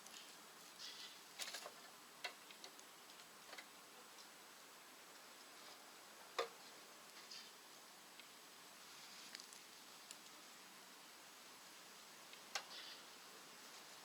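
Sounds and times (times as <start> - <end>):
quiet hiss: 0.0 - 14.0
wood crackling in a stove: 0.0 - 14.0.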